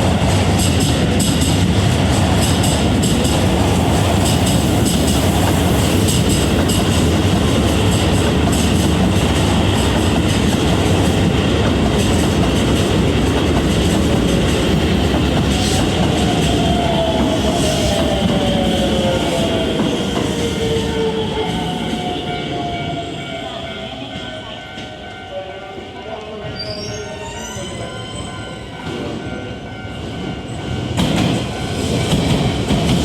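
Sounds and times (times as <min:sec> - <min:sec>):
electric train rumbling: 0:00.0 - 0:33.0.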